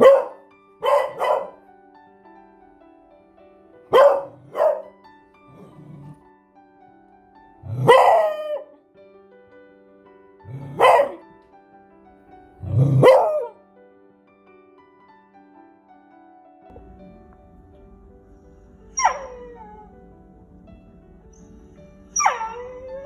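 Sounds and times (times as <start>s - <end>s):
dog barking: 0.0s - 1.6s, 3.9s - 4.9s, 7.7s - 8.8s, 10.5s - 11.3s, 12.6s - 13.6s, 18.9s - 20.0s, 22.1s - 23.0s
soft piano music: 0.0s - 23.0s.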